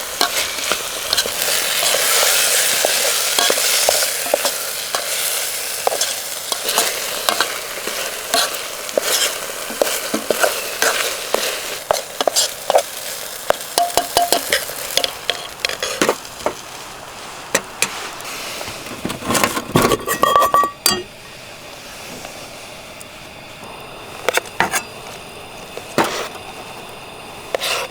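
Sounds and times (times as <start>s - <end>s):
utensil stirring and scraping: 0.0s - 16.6s, 27.5s - 27.9s
curry sizzling in a frying pan: 0.0s - 18.7s.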